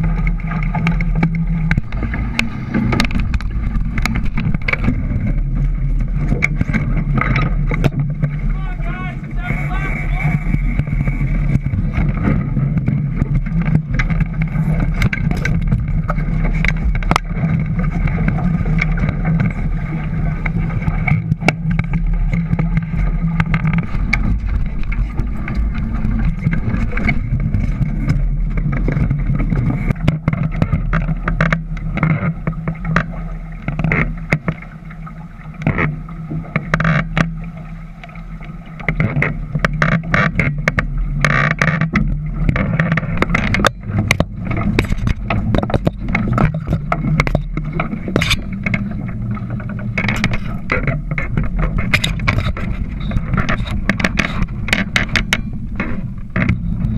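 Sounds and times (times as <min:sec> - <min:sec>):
rushing wind: 0:00.0 - 0:29.9
boat engine hum: 0:00.0 - 0:56.9
water noise: 0:00.0 - 0:56.9.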